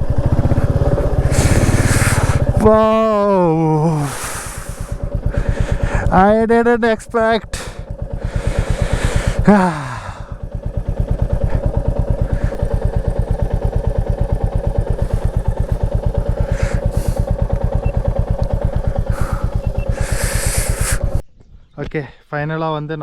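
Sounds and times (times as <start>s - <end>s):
motorcycle engine at low revs: 0.0s - 21.2s
person exclaiming: 2.5s - 5.0s, 9.4s - 10.3s.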